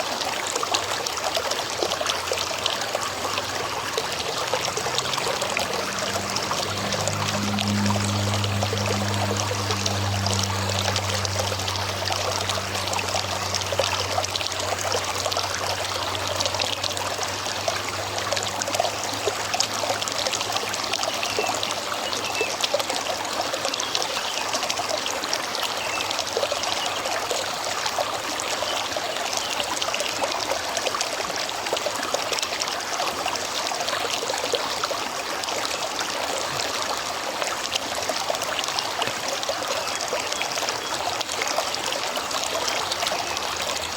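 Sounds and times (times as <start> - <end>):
river flowing over stones: 0.0 - 43.9
low steady hum: 2.8 - 20.8.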